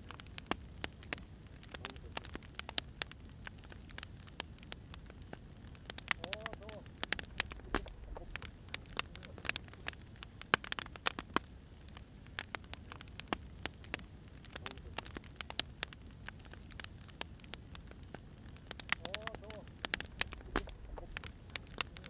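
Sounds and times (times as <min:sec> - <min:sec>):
firewood crackling and popping: 0:00.0 - 0:22.0
low steady rumble: 0:06.3 - 0:10.0, 0:17.6 - 0:22.0.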